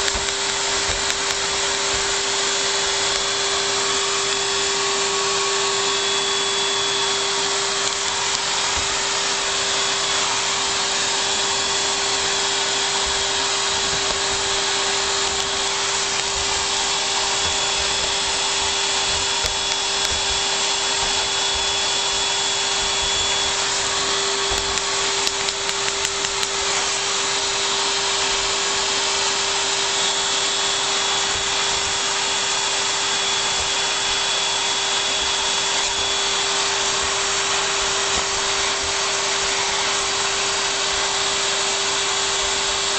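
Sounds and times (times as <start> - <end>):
knocks and clicks: 0.0 - 2.2
vacuum cleaner running: 0.0 - 42.9.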